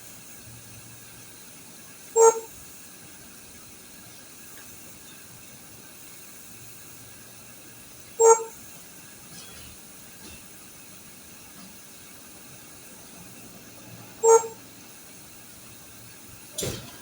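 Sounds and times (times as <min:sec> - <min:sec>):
short beeps: 0:08.2 - 0:08.5, 0:14.2 - 0:14.6.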